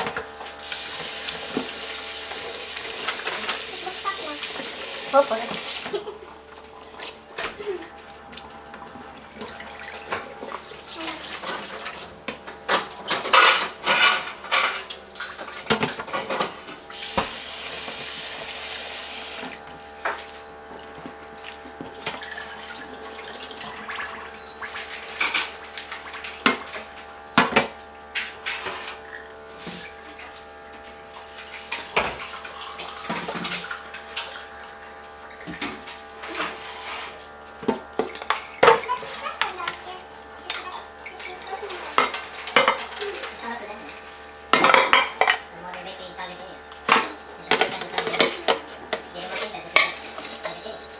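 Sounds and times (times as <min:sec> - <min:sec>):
tap running: 0:00.0 - 0:13.5, 0:15.3 - 0:22.3.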